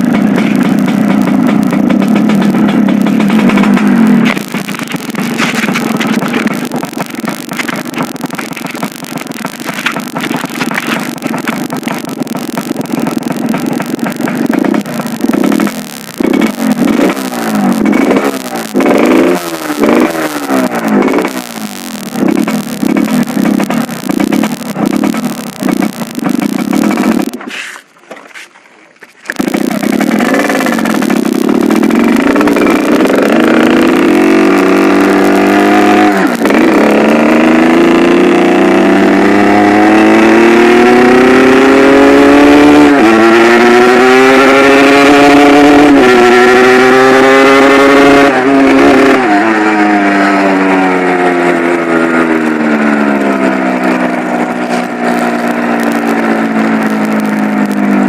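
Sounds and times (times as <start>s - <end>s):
motorcycle accelerating through gears: 0.0s - 27.4s, 29.3s - 58.0s.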